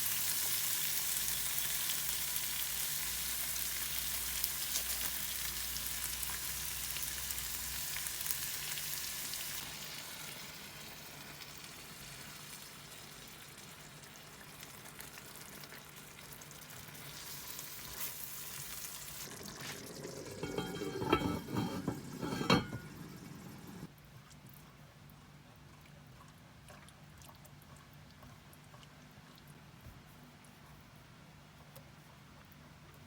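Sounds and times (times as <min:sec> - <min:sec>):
food sizzling in a pan: 0:00.0 - 0:23.9.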